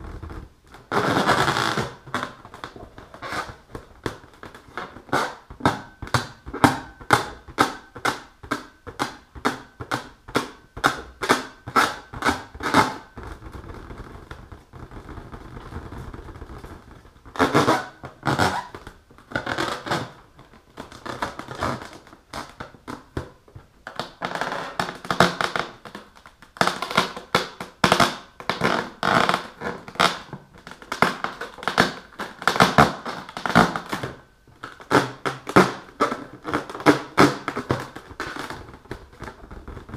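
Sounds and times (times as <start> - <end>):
rubbing on balloon: 0.0 - 8.2, 10.8 - 22.6.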